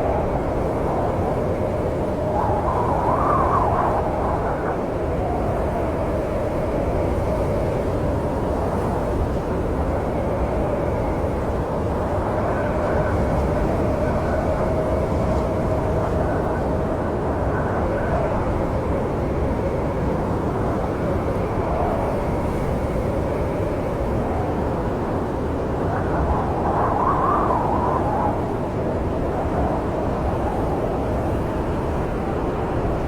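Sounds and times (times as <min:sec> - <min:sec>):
wavering wind howl: 0:00.0 - 0:33.0
wind rumbling: 0:12.0 - 0:33.0.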